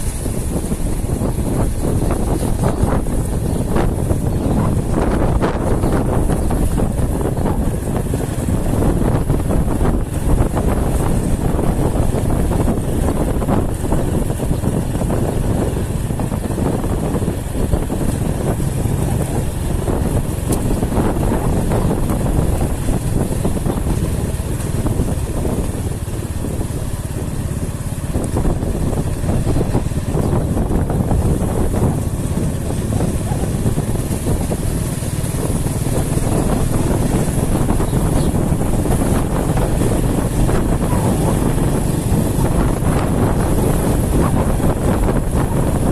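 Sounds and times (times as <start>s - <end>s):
road noise: 0.0s - 45.9s
vehicle engine: 0.0s - 45.9s
wind buffeting microphone: 0.0s - 45.9s.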